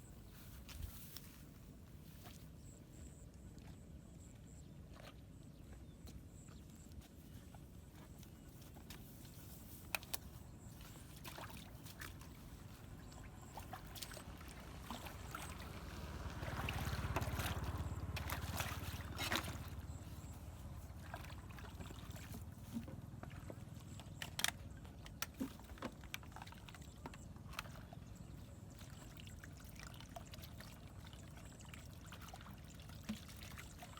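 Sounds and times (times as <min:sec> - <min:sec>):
water sloshing and gurgling: 0:00.0 - 0:33.9.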